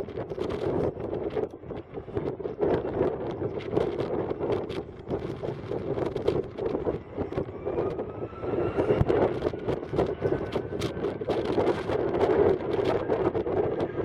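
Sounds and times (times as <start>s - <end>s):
wind buffeting microphone: 0.0s - 14.0s
jet engines whining: 0.5s - 14.0s.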